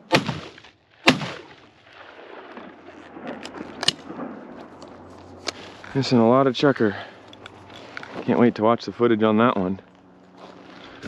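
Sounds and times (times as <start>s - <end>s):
shotgun shots with echo: 0.0s - 4.4s.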